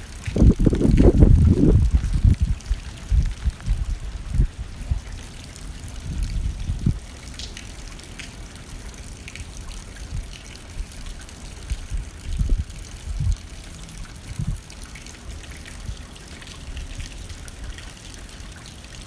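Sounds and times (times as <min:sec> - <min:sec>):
gusts of wind rumbling: 0:00.0 - 0:05.2, 0:05.8 - 0:07.0, 0:10.0 - 0:13.6, 0:14.3 - 0:14.6
rain hitting a window pane: 0:00.0 - 0:19.0.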